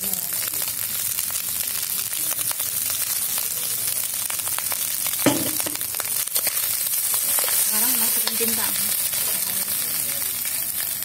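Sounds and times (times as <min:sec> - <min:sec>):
rice sizzling in a wok: 0:00.0 - 0:11.0
loud knock: 0:05.3 - 0:05.8.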